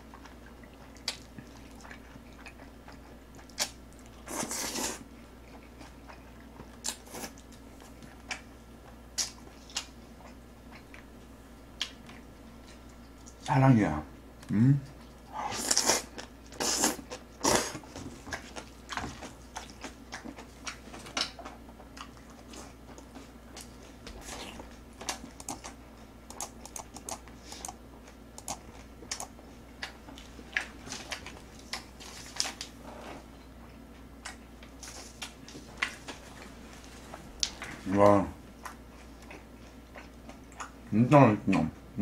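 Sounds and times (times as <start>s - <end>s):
chewing: 0.0s - 11.1s, 14.9s - 37.8s, 38.6s - 40.8s.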